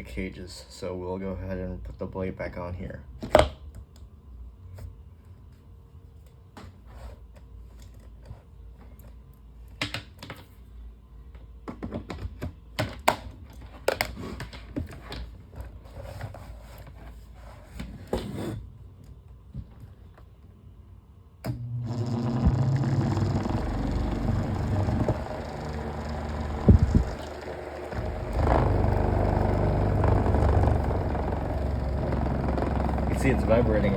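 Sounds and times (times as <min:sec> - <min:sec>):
fan humming and rattling: 0:21.4 - 0:33.9.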